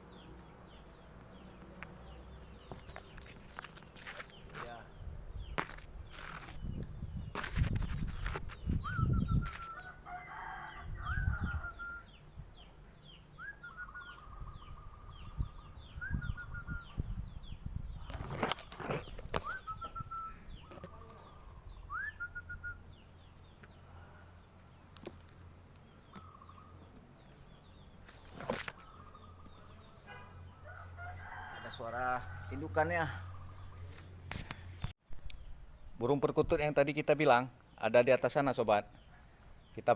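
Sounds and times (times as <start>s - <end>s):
small bird chirping rapidly: 1.9s - 10.0s, 11.1s - 23.8s, 24.6s - 30.0s.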